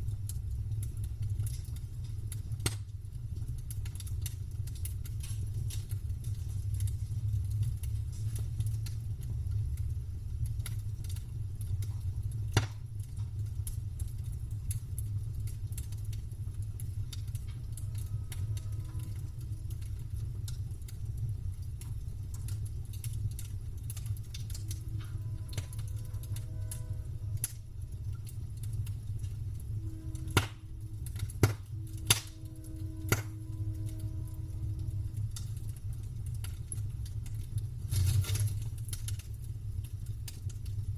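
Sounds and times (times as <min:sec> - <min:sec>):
steady low rumble: 0:00.0 - 0:40.9
wood campfire crackling: 0:00.0 - 0:40.9
sharp pops of fire: 0:00.2 - 0:09.0, 0:10.4 - 0:16.2, 0:30.1 - 0:33.9.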